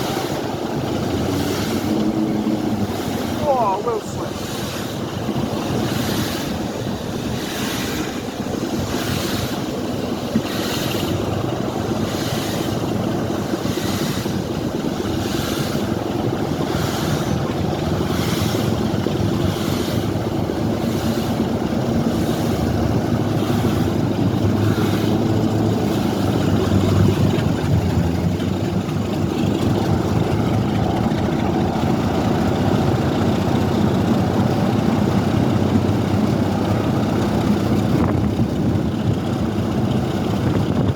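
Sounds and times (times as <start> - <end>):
deep engine note: 0.0 - 4.0
train rumbling: 0.0 - 40.9.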